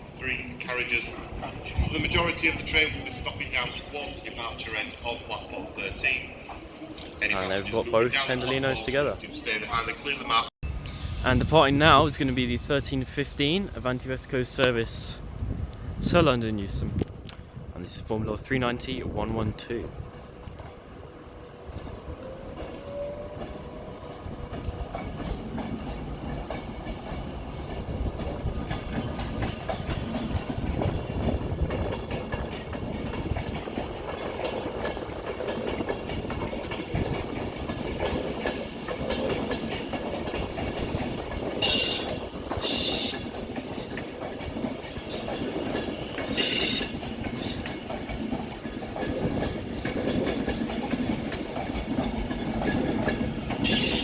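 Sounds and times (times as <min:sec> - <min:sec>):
electric train pulling out: 0:00.0 - 0:15.0, 0:20.0 - 0:54.0
high wheel squeals: 0:41.6 - 0:44.0, 0:46.2 - 0:47.6, 0:53.6 - 0:54.0.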